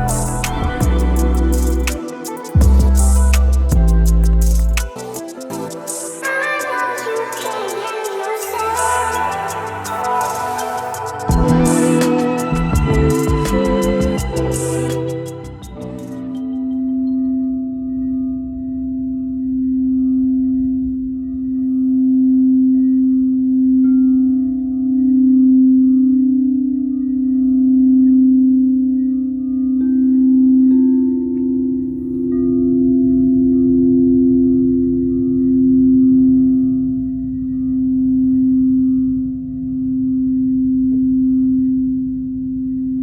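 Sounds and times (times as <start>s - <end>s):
faint higher bowl tones: 8.6s - 43.0s
singing bowl ringing low tone: 11.3s - 43.0s.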